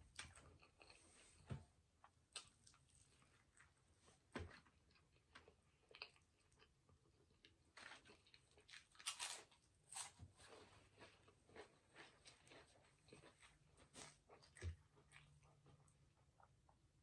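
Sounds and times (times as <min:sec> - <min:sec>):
close chewing crunches: 0:07.4 - 0:16.0.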